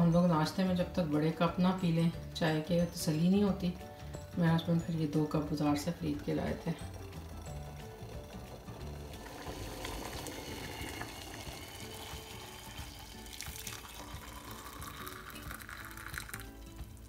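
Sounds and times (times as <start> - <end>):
water pouring into mug: 6.5 - 17.0.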